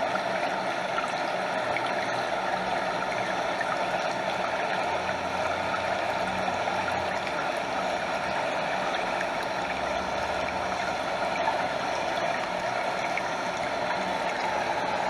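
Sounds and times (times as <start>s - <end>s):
stream flowing over small waterfall: 0.0s - 15.0s.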